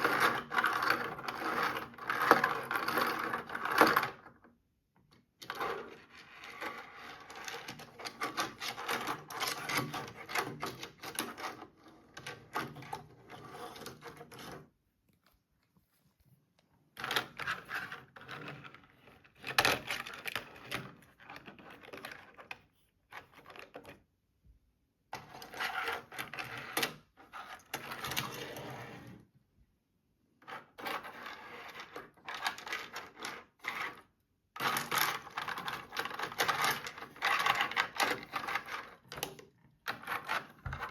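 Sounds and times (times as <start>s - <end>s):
plastic toy pieces clicking and clattering: 30.6s - 40.9s.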